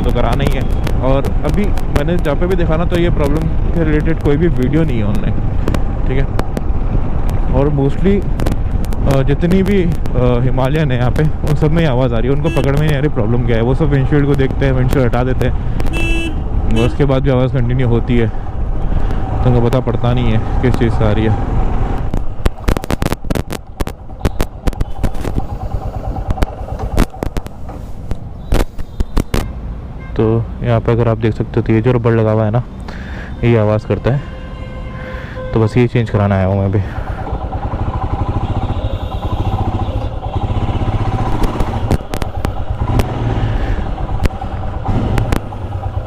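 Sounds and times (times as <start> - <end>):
sharp clicks: 0.0 - 10.2, 21.9 - 29.6, 39.2 - 46.0
motorcycle engine rumble: 0.0 - 30.1, 35.3 - 46.0
motorcycle engine idling: 23.6 - 28.4, 36.8 - 46.0.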